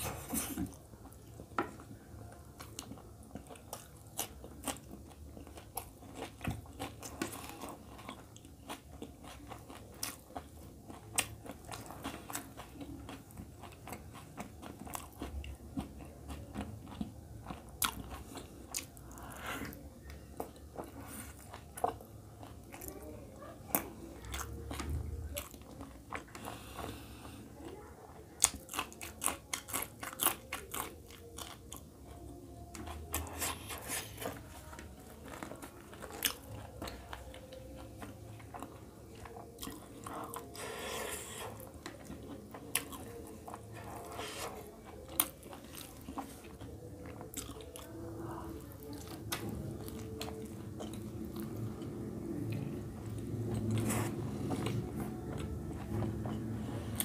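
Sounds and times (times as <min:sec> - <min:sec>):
wet chewing: 0:02.6 - 0:27.8, 0:28.4 - 0:57.0
crisp crunching while eating: 0:28.4 - 0:32.2, 0:32.9 - 0:52.6.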